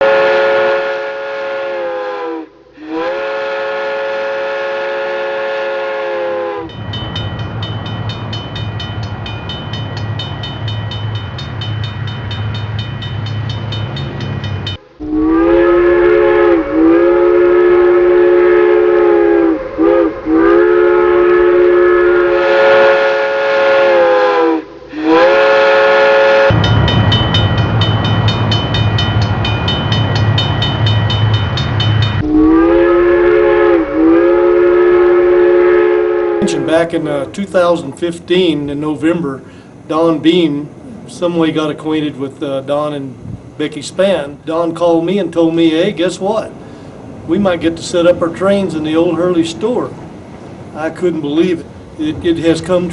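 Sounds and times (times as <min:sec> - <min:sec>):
multi-note train horn blasts: 0:00.0 - 0:06.8, 0:14.7 - 0:26.9, 0:32.1 - 0:37.3.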